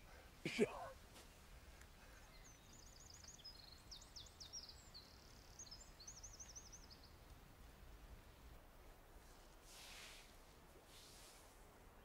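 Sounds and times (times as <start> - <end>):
faint songbird singing: 1.3 - 7.5.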